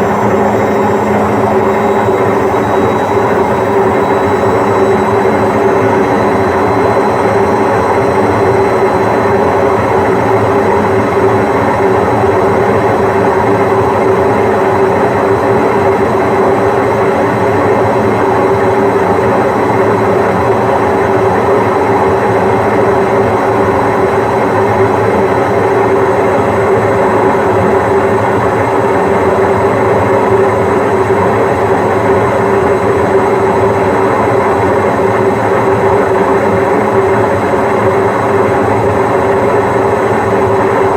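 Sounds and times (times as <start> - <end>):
washing machine spinning: 0.0 - 17.3.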